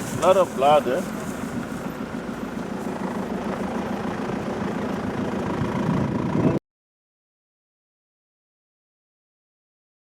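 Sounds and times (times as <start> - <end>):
vehicle engine idling: 0.0 - 6.6.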